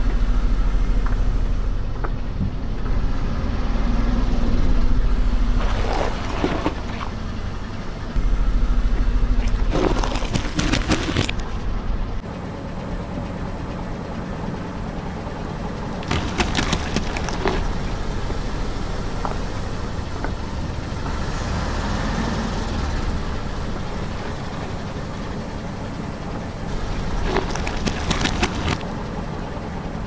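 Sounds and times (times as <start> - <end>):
car engine running: 0.0 - 30.0
tyres crushing crunchy objects: 9.5 - 11.5, 16.0 - 17.8, 26.7 - 28.9.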